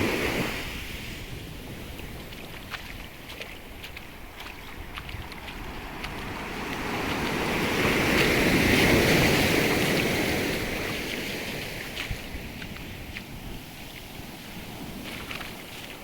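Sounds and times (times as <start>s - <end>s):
sea wave washing in: 0.0s - 1.8s, 5.3s - 16.0s.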